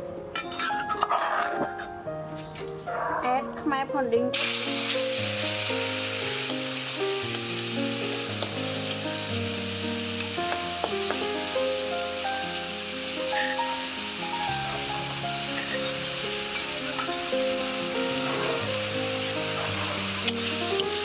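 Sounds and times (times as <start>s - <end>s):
background music: 0.0s - 21.0s
metal spatula scraping a wok: 0.4s - 1.6s, 18.1s - 18.7s
spice paste sizzling in oil: 4.4s - 21.0s.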